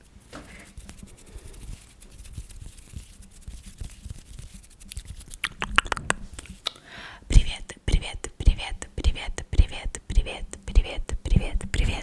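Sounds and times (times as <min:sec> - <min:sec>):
fast tapping and scratching: 0:00.7 - 0:06.2.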